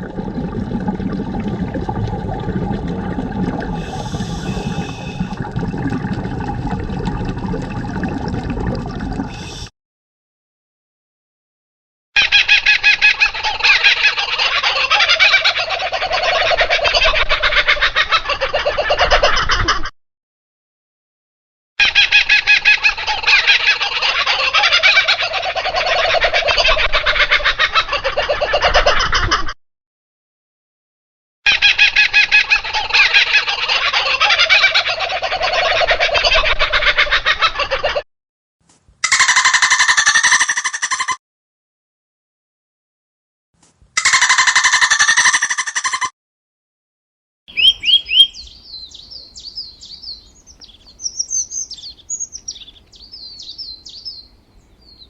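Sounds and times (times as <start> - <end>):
fowl calling in rapid pulses: 39.0 - 41.2, 44.0 - 46.1.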